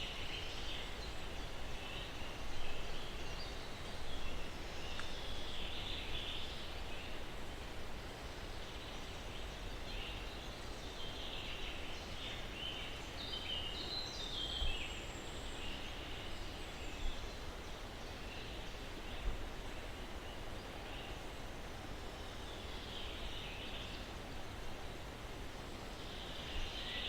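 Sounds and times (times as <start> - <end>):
small birds chirping: 0.0 - 7.4
breeze through pine trees: 0.0 - 27.0.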